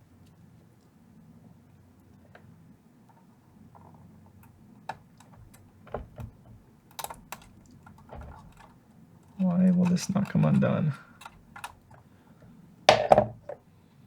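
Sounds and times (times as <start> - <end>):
hand tools clicking and tapping: 3.8 - 12.1.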